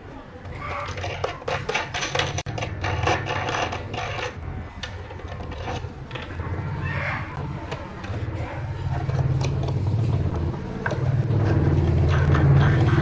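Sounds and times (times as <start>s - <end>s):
metallic clicks and rattles: 0.5s - 6.6s.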